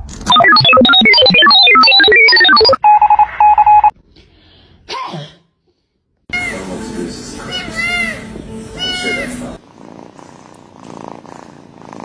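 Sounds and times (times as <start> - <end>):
electronic beeping notes: 0.3 - 3.9
pulsing beep over buzz: 0.3 - 3.9.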